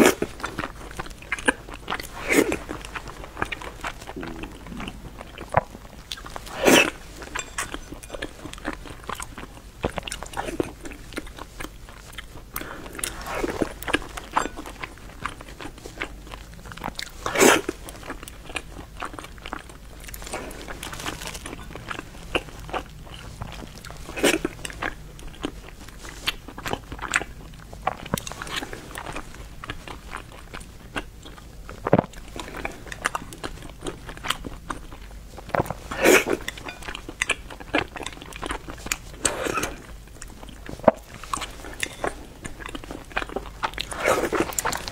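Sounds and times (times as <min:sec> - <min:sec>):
person chewing and eating: 0:00.0 - 0:44.9.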